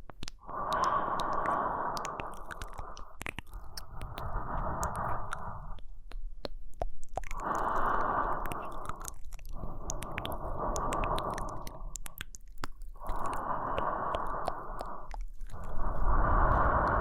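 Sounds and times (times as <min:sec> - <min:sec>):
wet mouth and lip clicks: 0:00.0 - 0:17.0
slow human breathing: 0:00.3 - 0:06.2, 0:07.2 - 0:17.0.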